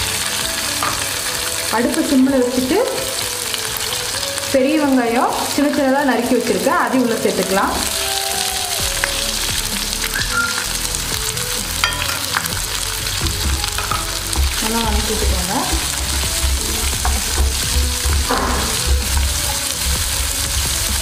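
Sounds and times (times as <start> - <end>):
onions sizzling in hot oil: 0.0 - 21.0
wooden spatula scraping pan: 13.2 - 21.0.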